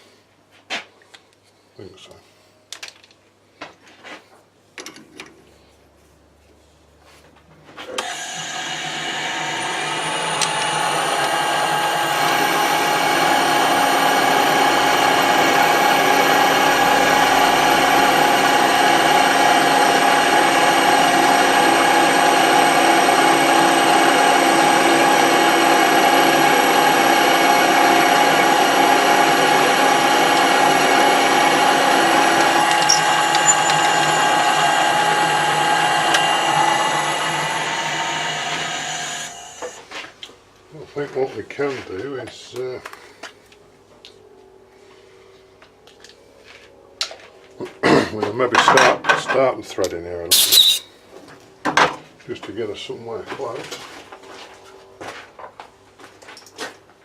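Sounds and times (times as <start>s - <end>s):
machine tool motor whining: 8.0s - 39.8s, 50.3s - 50.9s.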